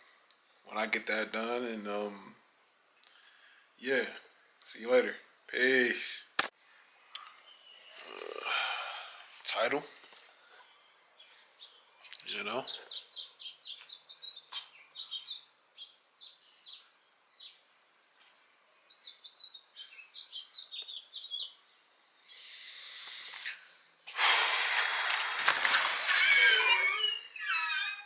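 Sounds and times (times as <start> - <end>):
small birds chirping: 6.6 - 27.4
loud rushing hiss: 24.1 - 26.2.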